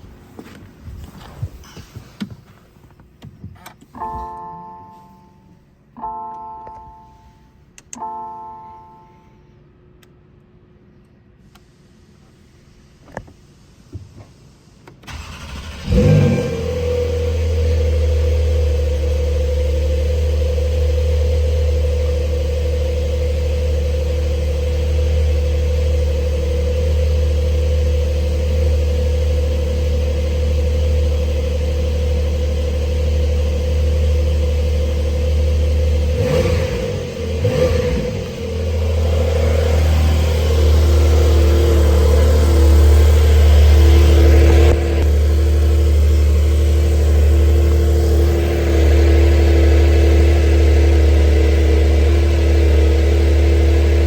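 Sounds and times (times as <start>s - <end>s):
car engine starting and idling: 0.0s - 9.2s, 14.4s - 54.0s
engine revving blips: 35.9s - 46.4s.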